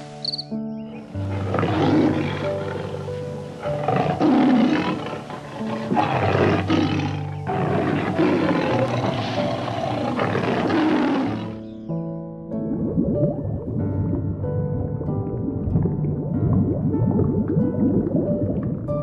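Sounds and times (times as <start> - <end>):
background music: 0.0 - 19.0
animal roaring: 0.9 - 11.7.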